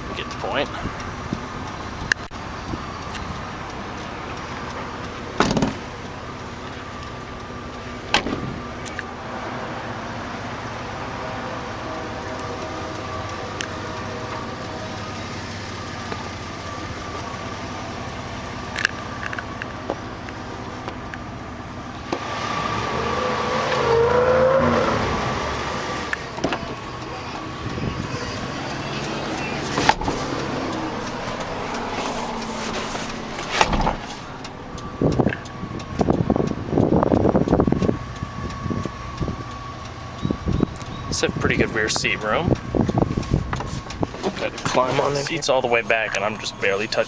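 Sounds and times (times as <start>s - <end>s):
car engine idling: 0.0s - 47.0s
thump: 5.4s - 5.8s, 8.1s - 8.6s, 33.6s - 34.1s
scuffing noises: 29.0s - 34.3s.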